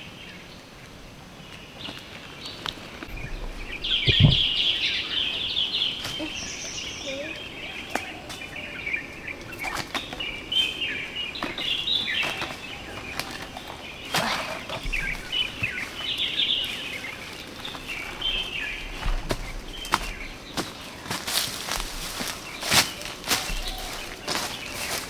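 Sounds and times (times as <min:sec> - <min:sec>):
birds chirping: 0:00.0 - 0:25.0
light rustling: 0:02.6 - 0:06.9.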